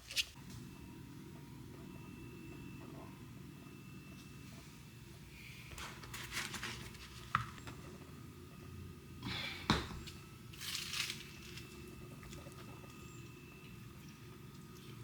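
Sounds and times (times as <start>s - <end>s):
crinkling and rustling: 0.0s - 0.4s, 5.7s - 7.7s.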